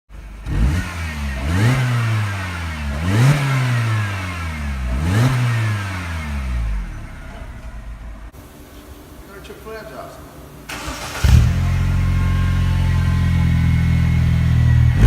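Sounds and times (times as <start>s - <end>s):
car engine revving: 0.2s - 7.9s, 10.7s - 15.0s
car engine idling: 6.4s - 9.2s, 10.4s - 15.0s.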